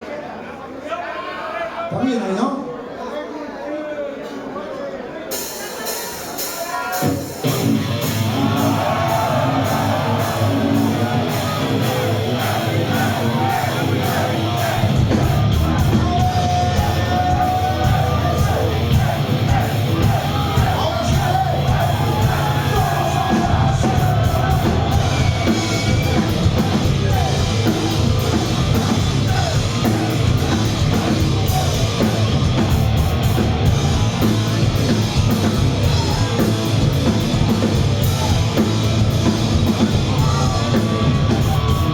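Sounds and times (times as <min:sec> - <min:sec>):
live rock band playing: 0:05.3 - 0:41.9
heavy bass and drums: 0:07.4 - 0:41.9
sung and shouted vocals: 0:08.2 - 0:32.4.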